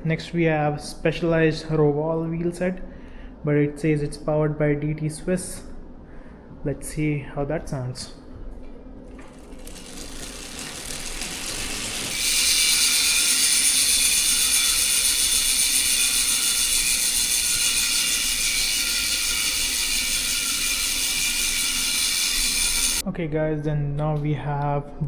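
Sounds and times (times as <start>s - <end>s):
bicycle freehub ratcheting: 9.1s - 23.0s.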